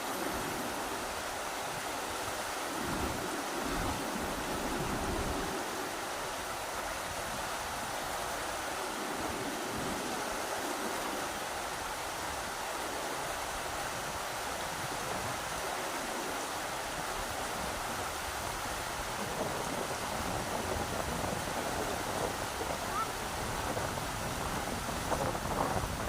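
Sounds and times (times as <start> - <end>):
rushing river water: 0.0 - 26.0.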